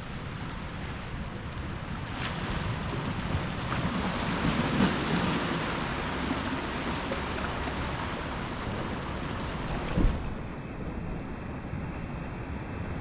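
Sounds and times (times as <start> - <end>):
ocean surf washing on shore: 0.0 - 10.5.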